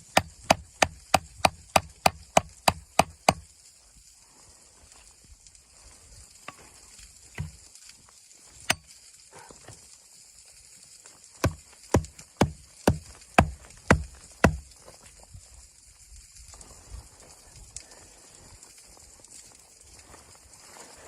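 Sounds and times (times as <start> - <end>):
faint steady hiss: 2.1 - 21.0
sharp loud knocks: 11.4 - 14.6.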